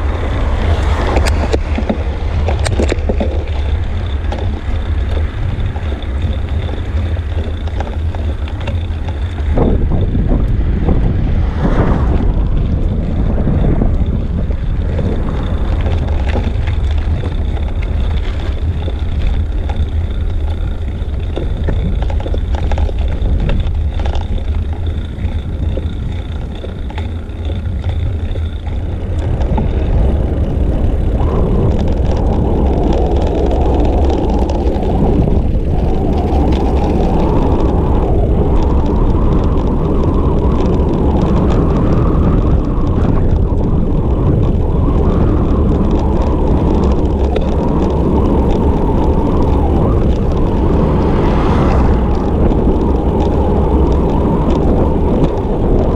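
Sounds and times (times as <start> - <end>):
road and tyre noise: 0.0 - 55.9
wind buffeting microphone: 0.0 - 55.9.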